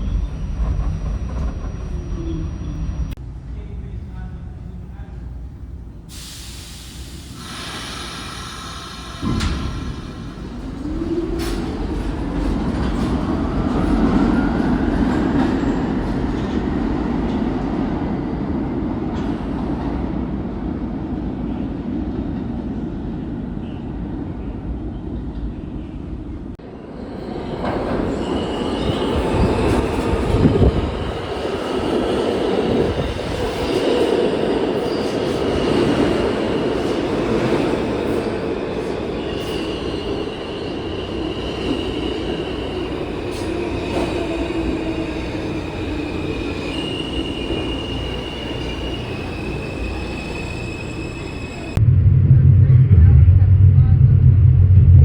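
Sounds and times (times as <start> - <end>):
train whine: 0.0 - 16.5, 26.6 - 55.0
train rumbling on rails: 0.0 - 55.0
high wheel squeal: 39.3 - 51.8.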